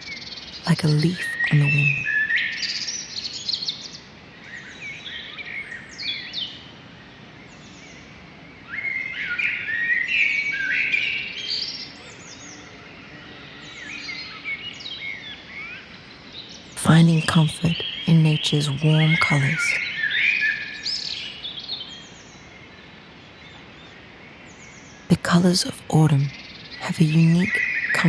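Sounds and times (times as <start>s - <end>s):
songbirds chirping: 0.0s - 28.0s.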